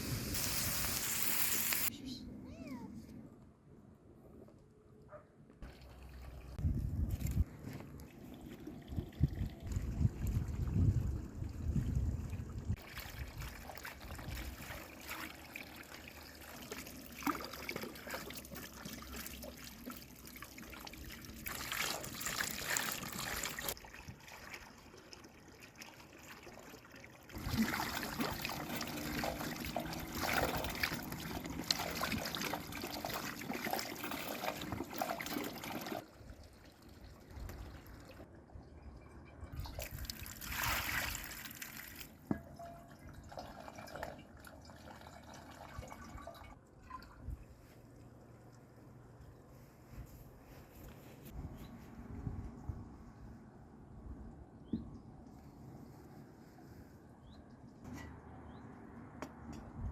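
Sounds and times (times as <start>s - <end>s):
water trickling and splashing: 5.6s - 48.9s.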